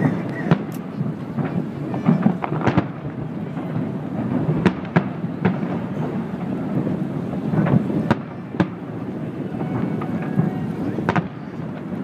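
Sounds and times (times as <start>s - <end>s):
continuous low rumble: 0.0s - 12.0s
fireworks bursting with sharp bangs: 0.0s - 12.0s.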